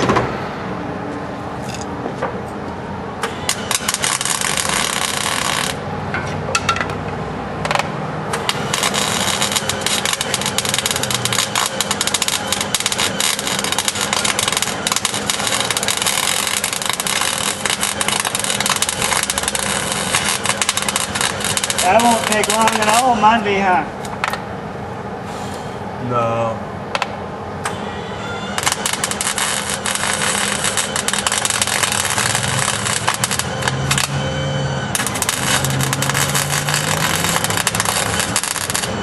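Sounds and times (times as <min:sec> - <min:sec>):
welder crackling: 0:03.2 - 0:06.0, 0:07.6 - 0:24.4, 0:28.6 - 0:39.0.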